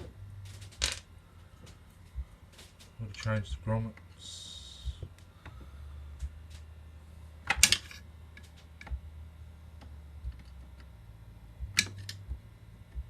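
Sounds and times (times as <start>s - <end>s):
steady low hum: 0.0s - 13.0s
small parts and tools clattering: 0.4s - 1.1s, 7.5s - 8.6s.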